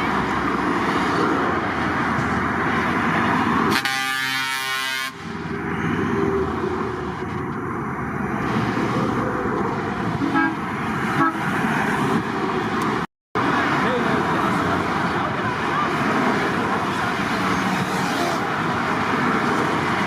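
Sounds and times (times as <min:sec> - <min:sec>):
loud vehicle noise: 0:00.0 - 0:20.0
truck air horn blast: 0:03.7 - 0:05.3, 0:10.2 - 0:11.5.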